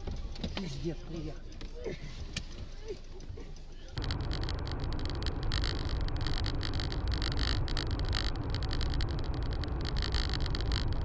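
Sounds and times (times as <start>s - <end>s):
car road and engine rumble: 0.0s - 11.0s
fine ticks: 2.3s - 11.0s.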